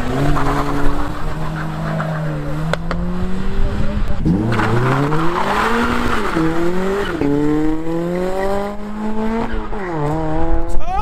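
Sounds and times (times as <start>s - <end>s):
car engine accelerating hard: 0.0s - 10.8s.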